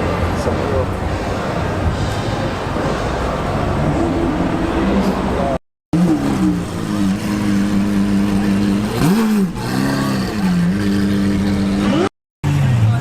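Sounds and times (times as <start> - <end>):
engine revving: 2.8 - 13.0.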